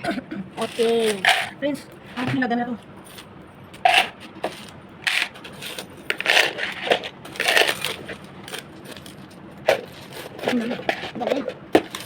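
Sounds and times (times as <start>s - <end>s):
plastic items crinkling and clattering: 4.0s - 12.0s.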